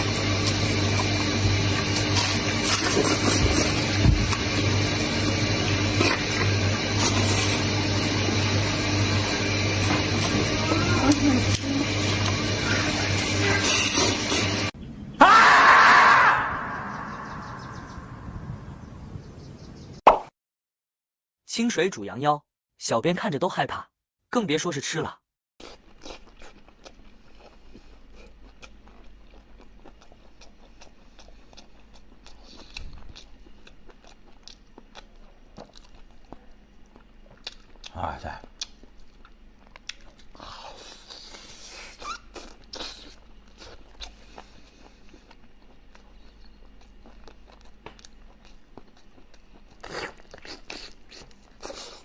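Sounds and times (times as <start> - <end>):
person chewing: 0.1 - 4.8, 9.5 - 14.6, 25.6 - 52.0
wet mouth clicks and smacks: 38.6 - 40.2.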